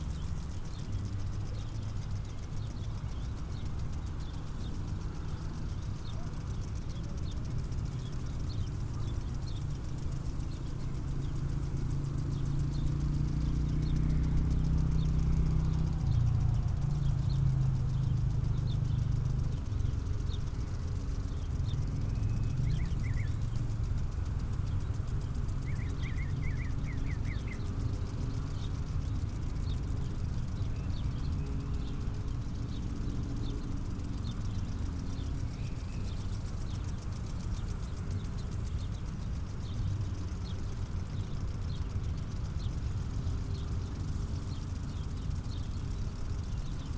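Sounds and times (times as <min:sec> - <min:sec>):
steady low rumble: 0:00.0 - 0:46.9
bird chirps: 0:08.0 - 0:23.6, 0:24.7 - 0:46.9
bird trill: 0:13.6 - 0:23.6, 0:24.7 - 0:42.8.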